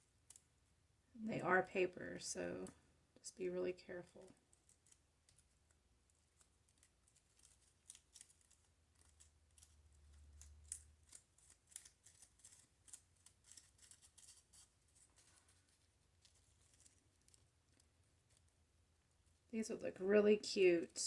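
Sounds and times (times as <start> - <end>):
paper crinkling: 4.1 - 19.4.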